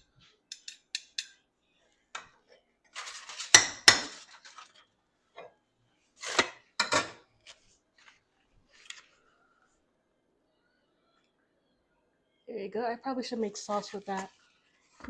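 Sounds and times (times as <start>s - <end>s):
kitchen utensils clattering: 3.0s - 4.7s, 6.2s - 7.2s.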